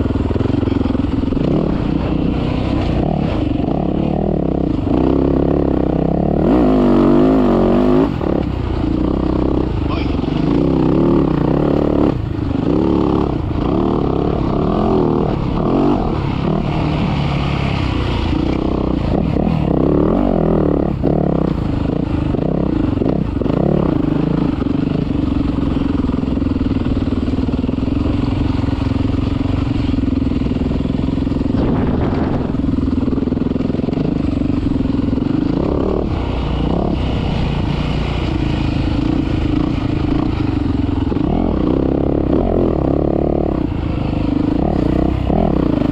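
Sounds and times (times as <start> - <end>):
dirt bike engine revving: 0.0 - 45.9.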